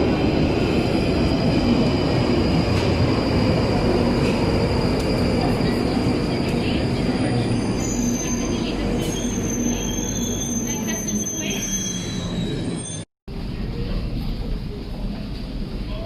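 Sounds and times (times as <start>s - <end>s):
train rumbling on rails: 0.0s - 16.0s
wheel squeals: 7.3s - 13.0s.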